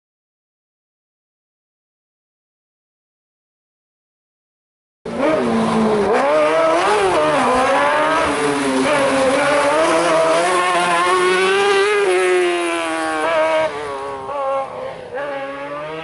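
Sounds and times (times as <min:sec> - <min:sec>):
car engine revving hard: 0:05.1 - 0:16.0.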